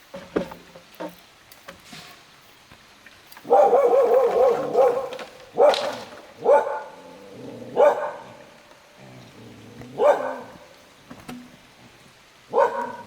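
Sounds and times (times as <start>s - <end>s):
dog barking: 3.5s - 7.0s, 7.7s - 8.4s, 9.9s - 10.6s, 12.5s - 13.0s.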